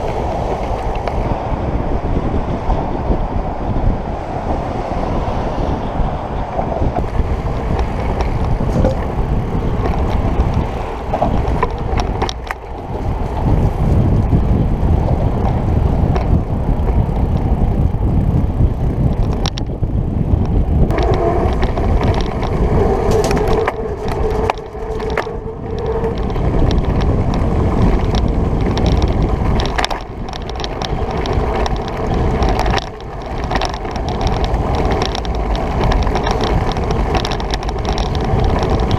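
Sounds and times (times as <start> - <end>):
bicycle tyre rumble: 0.0 - 38.9
wind rushing over microphone: 0.0 - 38.9
scattered clicks: 19.1 - 19.7, 20.4 - 38.9.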